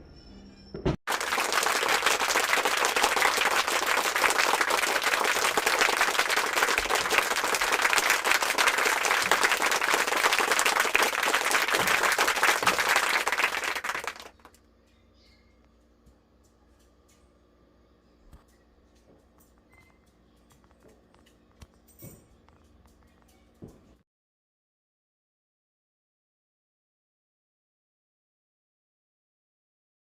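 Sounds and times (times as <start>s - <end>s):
fireworks crackling: 1.1s - 14.3s.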